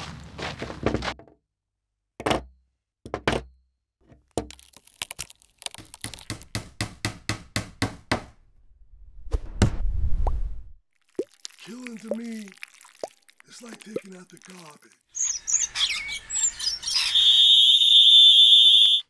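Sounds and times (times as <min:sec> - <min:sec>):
rising rush of noise: 0:08.8 - 0:10.8.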